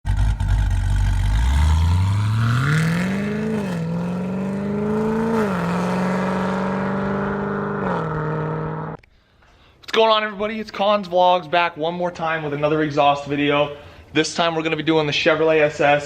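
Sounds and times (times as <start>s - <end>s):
car engine accelerating hard: 0.0s - 9.0s.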